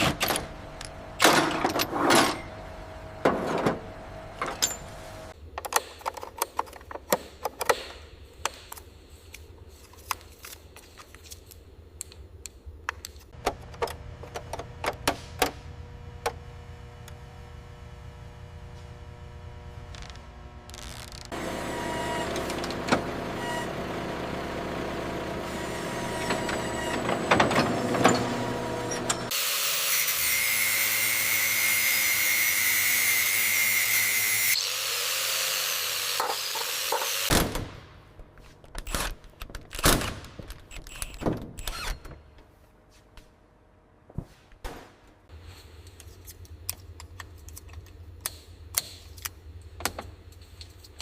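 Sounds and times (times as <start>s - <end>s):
motor running: 16.1s - 29.3s.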